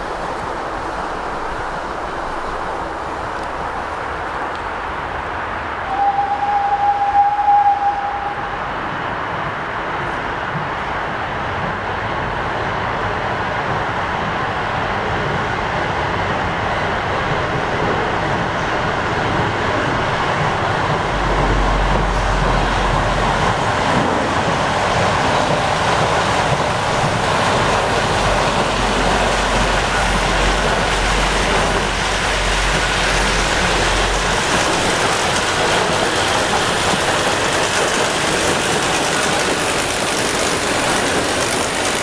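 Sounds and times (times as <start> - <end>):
train rail noise: 0.0 - 42.0
deep rumble: 19.7 - 25.6, 26.8 - 35.2.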